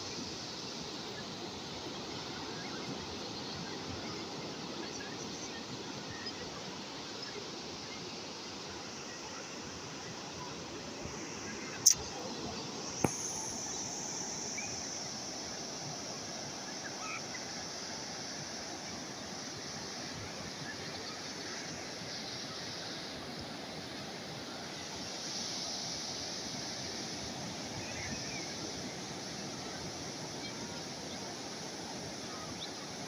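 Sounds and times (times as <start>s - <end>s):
sharp click: 13.0s - 13.5s.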